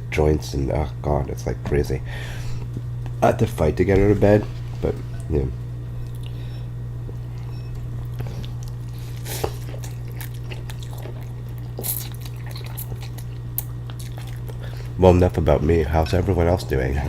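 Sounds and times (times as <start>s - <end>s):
low electrical hum: 0.0s - 17.0s
person chewing food: 5.9s - 15.0s.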